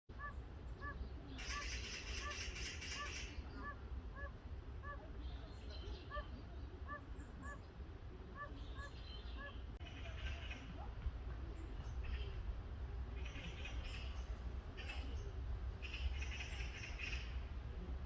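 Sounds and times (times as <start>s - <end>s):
toads calling: 0.2s - 5.1s, 15.8s - 17.4s.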